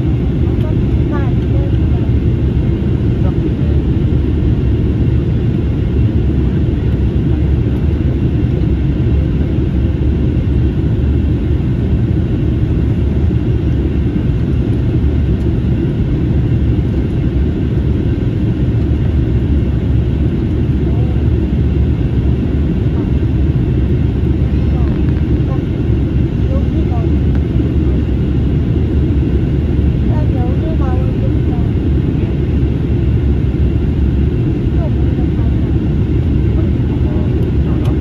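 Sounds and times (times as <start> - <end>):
airliner cabin engine roar: 0.0 - 38.0.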